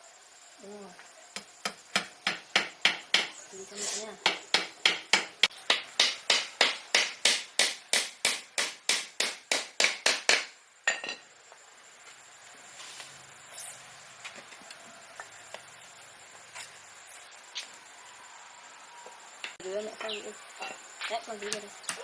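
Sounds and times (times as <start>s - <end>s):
rapid hammer blows: 4.2s - 10.5s.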